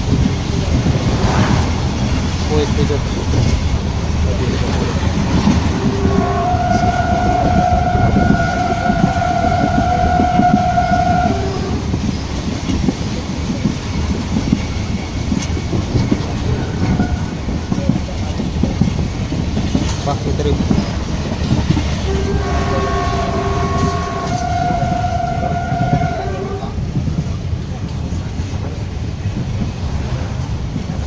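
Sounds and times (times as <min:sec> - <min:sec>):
train wheels rumbling and rattling: 0:00.0 - 0:31.0
train horn long blast: 0:05.8 - 0:11.8, 0:22.0 - 0:26.8.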